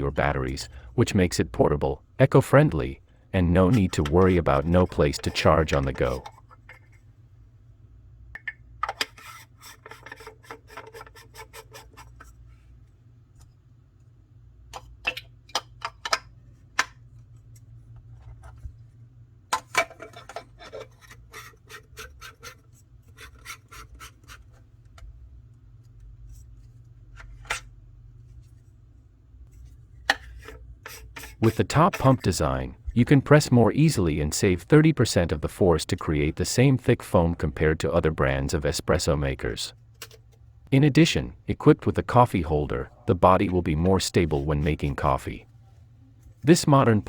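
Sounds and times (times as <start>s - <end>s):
scraping and rubbing of hard parts: 8.8s - 12.6s, 19.7s - 25.0s, 29.5s - 32.4s.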